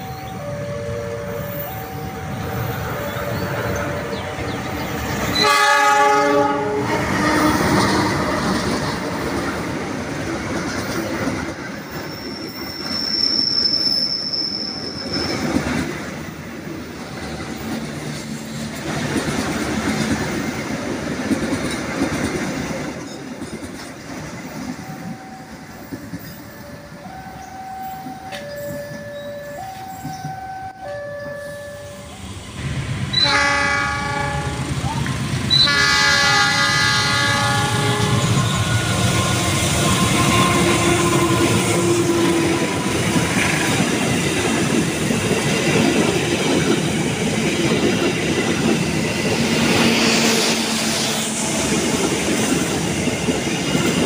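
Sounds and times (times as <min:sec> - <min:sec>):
locomotive horn blast: 0:05.3 - 0:09.1, 0:33.1 - 0:42.9
high wheel squeal: 0:11.9 - 0:15.6
train wheels clacking: 0:17.0 - 0:30.4, 0:38.0 - 0:54.0.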